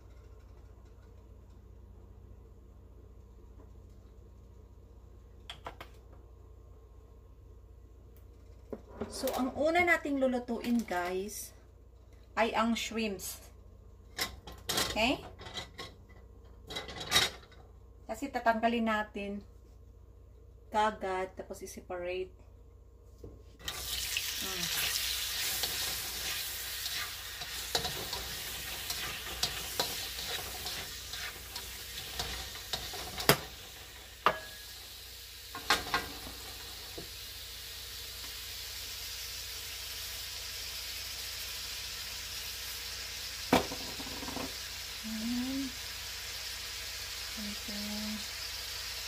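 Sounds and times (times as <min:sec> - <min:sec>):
shrimp sizzling in hot oil: 0:23.6 - 0:49.0
utensils clacking on pan: 0:25.4 - 0:34.7.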